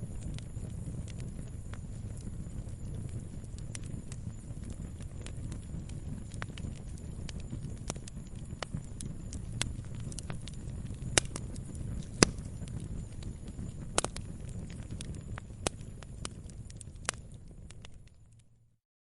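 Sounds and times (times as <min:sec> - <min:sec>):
low rumble of flames: 0:00.0 - 0:18.8
wood popping and snapping: 0:09.3 - 0:12.8.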